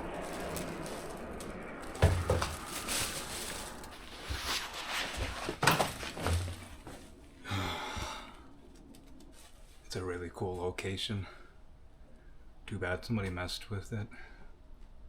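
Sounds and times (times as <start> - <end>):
footsteps crunching on gravel: 0.0 - 7.1.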